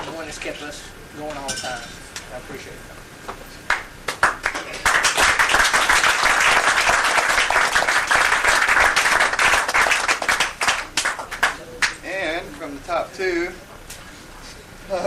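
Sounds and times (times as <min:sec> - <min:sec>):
small group applauding: 0:03.7 - 0:12.0.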